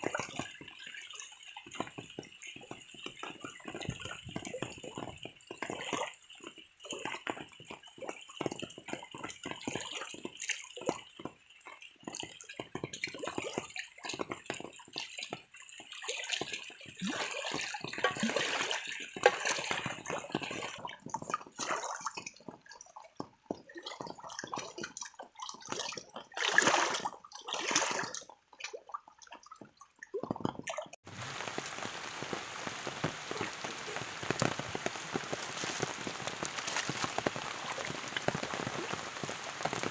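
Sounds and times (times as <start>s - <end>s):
rain falling on a surface: 0.0s - 15.8s, 31.0s - 39.9s
water dripping and splashing: 0.0s - 39.9s.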